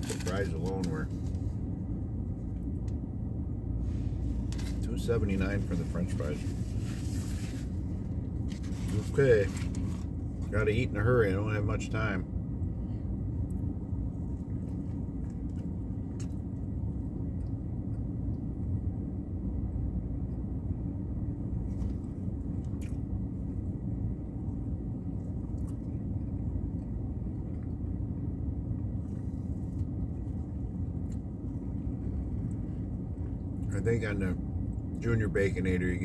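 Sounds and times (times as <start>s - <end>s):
low rumble inside car: 0.0s - 36.0s
man chewing: 25.2s - 27.8s.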